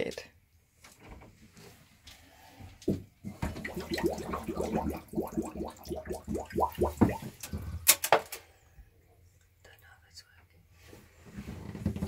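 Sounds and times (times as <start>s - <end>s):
water gurgling through pipes: 3.3s - 7.7s.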